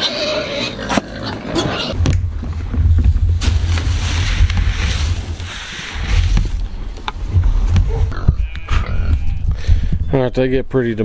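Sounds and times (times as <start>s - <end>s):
wind buffeting microphone: 2.0s - 10.7s.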